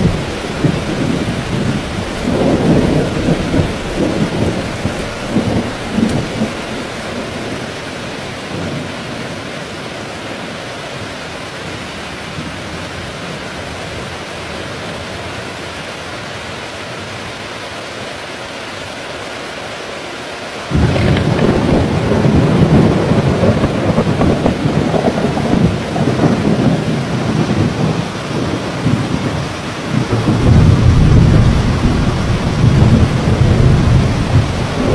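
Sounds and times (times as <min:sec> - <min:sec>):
thunder rumbling: 0:00.0 - 0:09.0, 0:20.7 - 0:34.9
heavy rain falling: 0:00.0 - 0:34.9.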